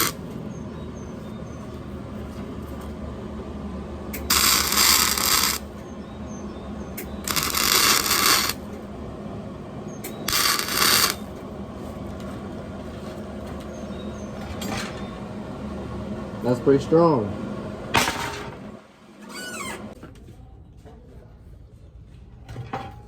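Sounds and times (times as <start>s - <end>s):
arc welding crackle: 0.0s - 0.3s, 4.1s - 5.8s, 6.9s - 8.8s, 10.0s - 11.4s
welder hum: 0.0s - 0.4s, 1.7s - 5.9s, 6.6s - 12.8s.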